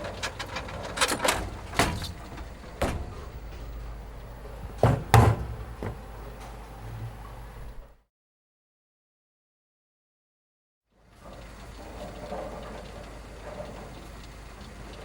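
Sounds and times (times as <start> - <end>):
steady low hum: 0.0 - 8.0
sharp irregular knocks: 4.7 - 6.0.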